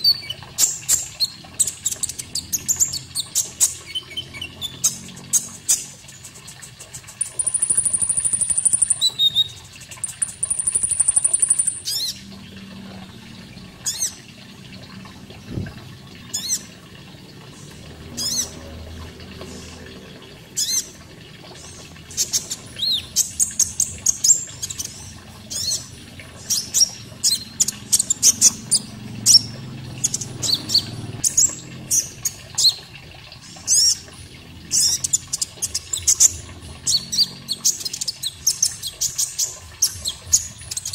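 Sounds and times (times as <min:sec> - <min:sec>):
water flowing: 0:00.0 - 0:40.9
bird chirping: 0:07.2 - 0:12.2.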